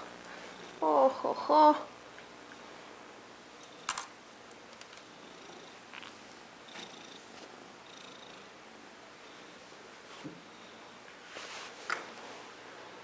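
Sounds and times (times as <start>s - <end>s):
kitten purring: 5.0s - 6.1s, 6.7s - 8.6s.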